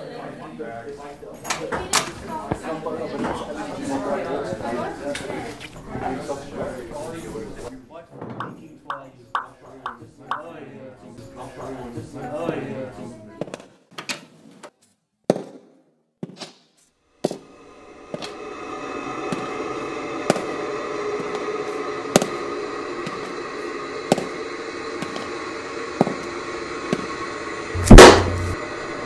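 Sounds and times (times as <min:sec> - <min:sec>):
suspense drone: 0:17.2 - 0:29.0
heavy thud: 0:27.8 - 0:28.6.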